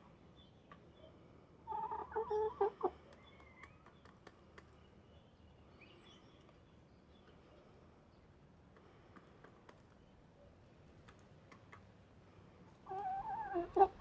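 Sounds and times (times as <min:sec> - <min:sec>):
rooster clucking: 0:12.9 - 0:14.0.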